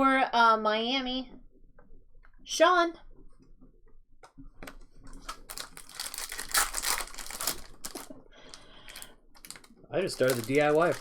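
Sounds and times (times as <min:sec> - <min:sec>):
foil wrappers crinkling: 0:05.2 - 0:11.0.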